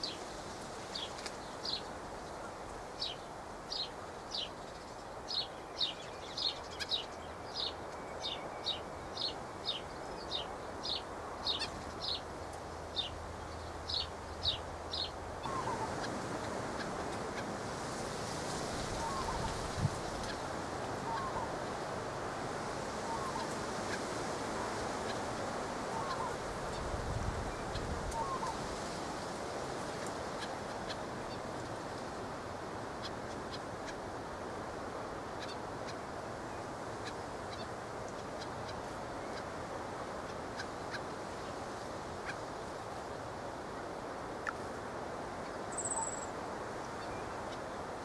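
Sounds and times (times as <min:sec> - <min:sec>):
steady background hiss: 0:00.0 - 0:48.0
small birds chirping: 0:45.5 - 0:47.7.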